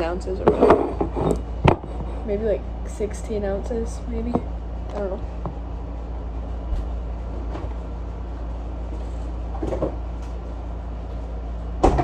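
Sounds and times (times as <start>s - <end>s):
kitchen items clattering: 0.0s - 2.3s
low background hum: 0.0s - 12.0s.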